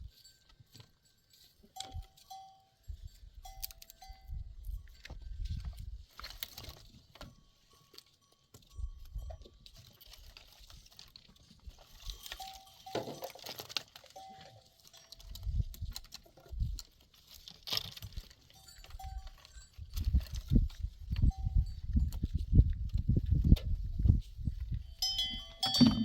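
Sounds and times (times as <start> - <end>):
livestock moving about: 0.0 - 26.0
bell ringing: 25.0 - 26.0
clicks and knocks: 25.6 - 26.0.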